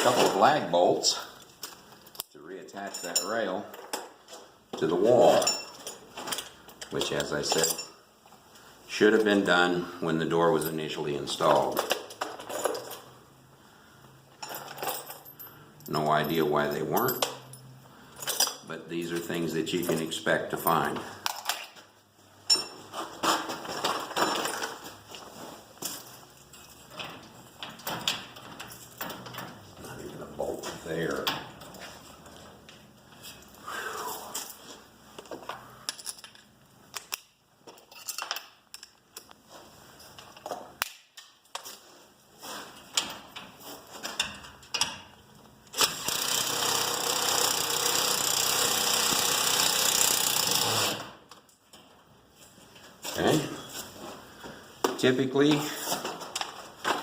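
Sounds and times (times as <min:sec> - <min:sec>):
tools and metal hardware clattering: 0:00.0 - 0:08.4, 0:09.0 - 0:13.4, 0:14.2 - 0:33.6, 0:34.3 - 0:57.0
handling clicks and knocks: 0:22.5 - 0:32.9
cordless power driver running: 0:45.8 - 0:51.1.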